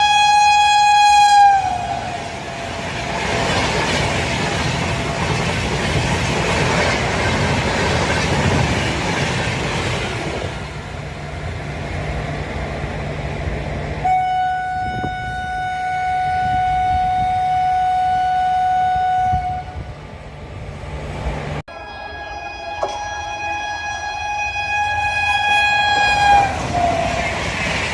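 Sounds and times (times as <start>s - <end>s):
train horn: 0.0s - 3.1s, 14.0s - 19.9s, 21.7s - 27.6s
train rushing on rails: 0.0s - 27.9s.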